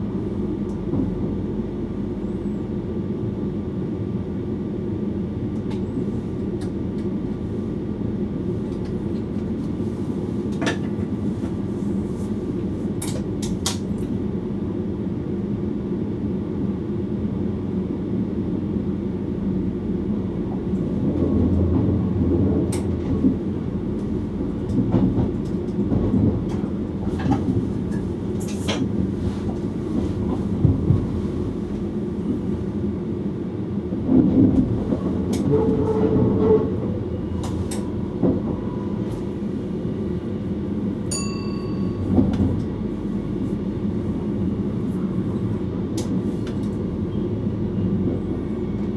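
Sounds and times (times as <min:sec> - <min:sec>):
wheels rumbling on rail: 0:00.0 - 0:48.9
clicks and clacks from rail joints: 0:08.6 - 0:09.8, 0:10.5 - 0:11.6, 0:13.0 - 0:14.2, 0:20.8 - 0:23.4, 0:24.0 - 0:31.9, 0:34.1 - 0:36.8, 0:37.4 - 0:39.2, 0:45.9 - 0:46.9.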